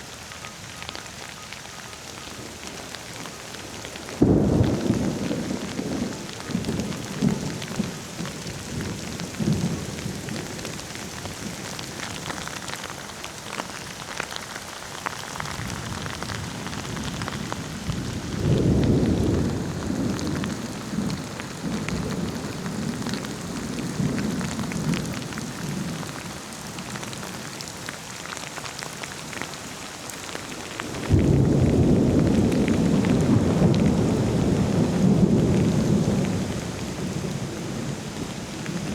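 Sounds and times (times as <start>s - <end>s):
steady rain falling: 0.0s - 38.9s
rolling thunder: 31.0s - 38.9s.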